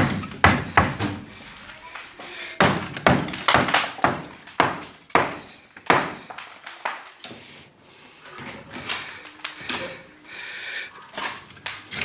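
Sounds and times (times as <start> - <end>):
hammer knocking on masonry: 0.0 - 1.2, 2.6 - 6.3.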